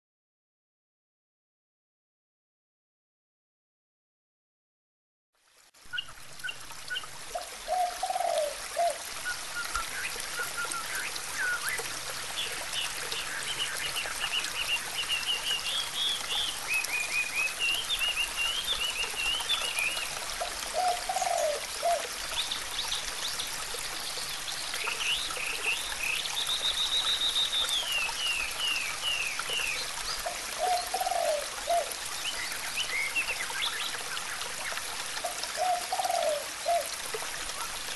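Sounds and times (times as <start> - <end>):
water trickling: 5.4 - 37.9
birds singing: 7.7 - 23.5, 24.2 - 34.8, 35.6 - 36.9.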